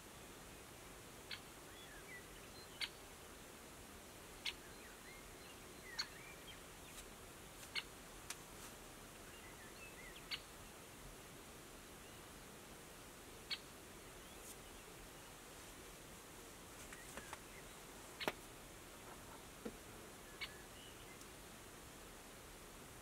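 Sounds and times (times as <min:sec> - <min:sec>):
faint bird twittering: 0:01.3 - 0:03.1, 0:04.4 - 0:07.0, 0:09.2 - 0:10.8, 0:13.4 - 0:15.4, 0:16.8 - 0:19.5, 0:20.2 - 0:21.3.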